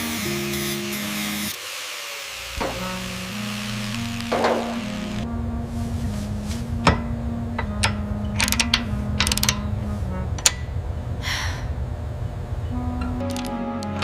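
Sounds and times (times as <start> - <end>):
soft background music: 2.6 - 10.9, 12.7 - 14.0
mechanical clicks and ratcheting: 8.4 - 9.6, 13.2 - 13.5.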